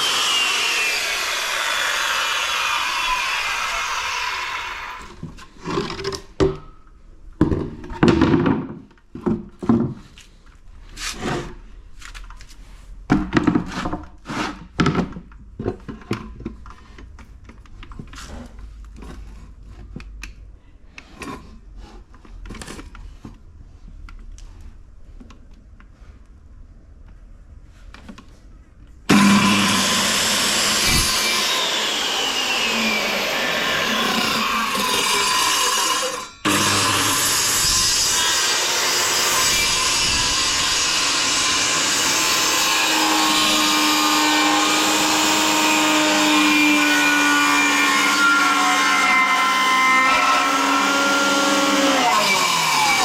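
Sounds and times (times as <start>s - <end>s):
power saw cutting plywood: 0.0s - 5.8s, 29.1s - 53.0s.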